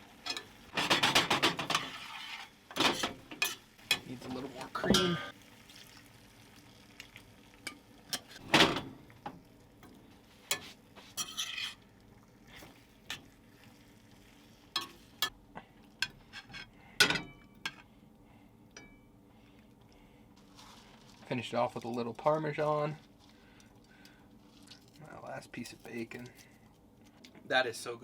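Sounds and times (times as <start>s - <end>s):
faint sizzle: 0.0s - 28.0s
utensil clinking and scraping pan: 0.2s - 5.3s, 7.7s - 8.4s, 10.5s - 11.8s, 14.8s - 15.3s.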